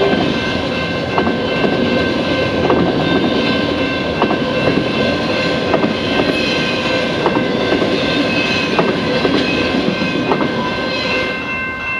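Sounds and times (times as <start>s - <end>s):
steel wheels rumbling on rail: 0.0s - 11.9s
high-pitched ringing tones: 9.4s - 11.9s.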